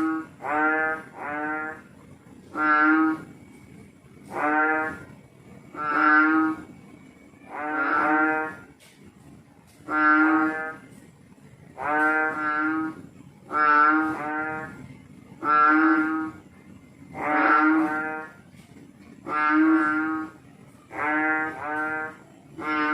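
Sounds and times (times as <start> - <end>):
frog calling: 0.0 - 1.9, 2.5 - 3.3, 4.2 - 6.7, 7.5 - 8.7, 9.9 - 10.9, 11.8 - 14.8, 15.4 - 16.5, 17.1 - 18.4, 19.2 - 22.9.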